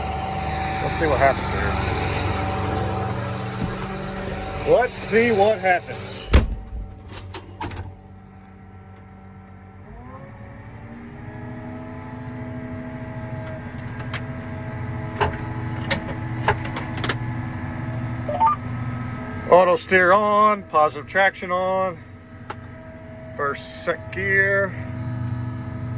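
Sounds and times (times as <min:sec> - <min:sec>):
diesel tractor engine revving: 0:00.0 - 0:06.4.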